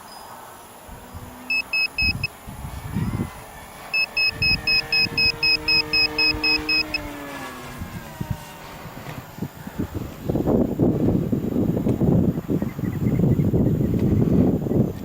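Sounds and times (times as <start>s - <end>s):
wind buffeting microphone: 0.6s - 15.0s
high-pitched electronic beeping: 1.4s - 2.3s, 3.9s - 7.1s.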